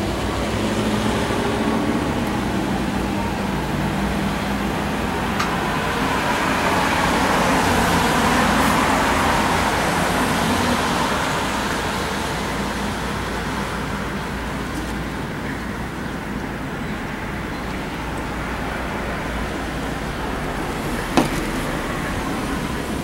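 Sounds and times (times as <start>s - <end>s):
road vehicle rush: 0.0s - 23.0s.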